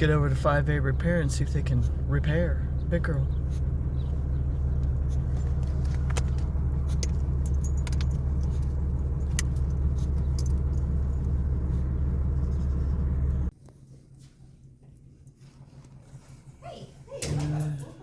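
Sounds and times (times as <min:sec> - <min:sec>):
diesel truck engine running: 0:00.0 - 0:13.5
light clicks and rattles: 0:04.7 - 0:11.5.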